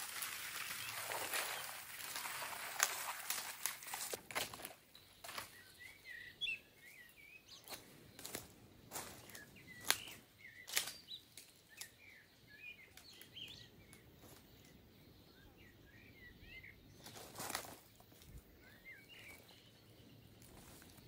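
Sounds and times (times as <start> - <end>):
footsteps crunching on dry leaves: 0.0 - 5.7, 7.6 - 11.9, 17.0 - 18.4
small birds chirping: 4.1 - 21.0.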